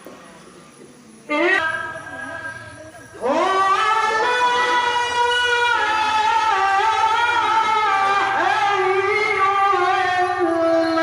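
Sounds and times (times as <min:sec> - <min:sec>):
man reciting melodically: 0:03.2 - 0:11.0.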